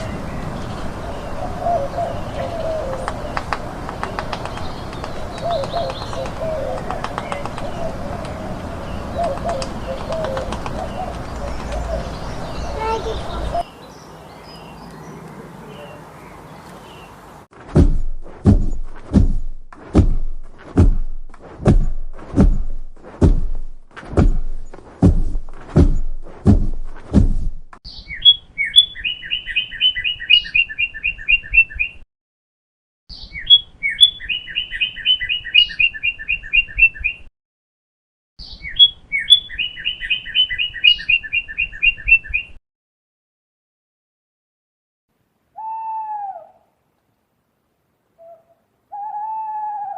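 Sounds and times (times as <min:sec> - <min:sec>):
songbird singing with trills: 0:00.0 - 0:03.5, 0:04.1 - 0:17.2, 0:27.9 - 0:32.0, 0:33.1 - 0:37.3, 0:38.4 - 0:42.6
slow knocks: 0:17.7 - 0:27.8.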